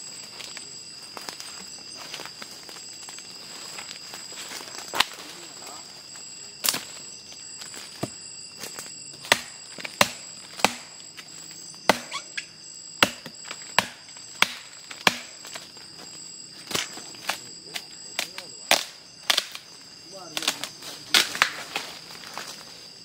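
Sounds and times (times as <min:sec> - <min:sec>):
forest insects droning: 0:00.0 - 0:23.0
sharp knocks: 0:09.2 - 0:10.9, 0:11.9 - 0:12.2, 0:13.0 - 0:15.4.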